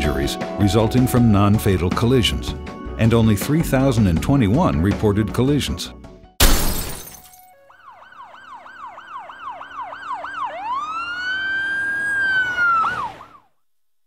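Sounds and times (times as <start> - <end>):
emergency vehicle siren: 7.5 - 13.5.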